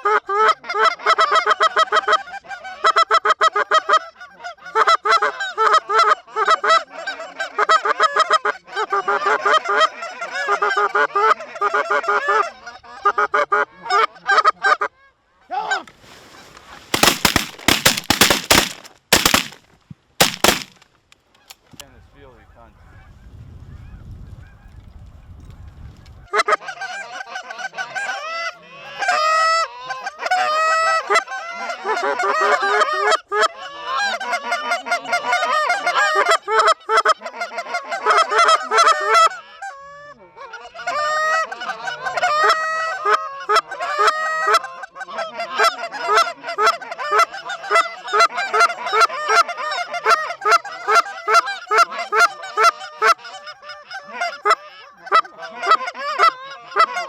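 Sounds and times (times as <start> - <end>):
geese honking and clucking: 42.2 - 57.0.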